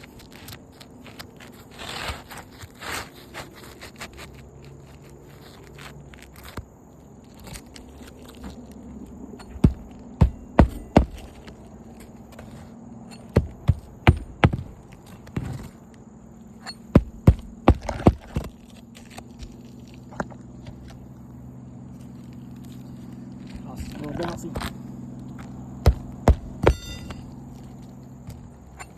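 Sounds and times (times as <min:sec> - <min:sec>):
steady low hum: 0:06.7 - 0:28.9
nails being hammered: 0:09.4 - 0:11.5, 0:13.1 - 0:15.6, 0:16.7 - 0:18.5, 0:25.8 - 0:27.4.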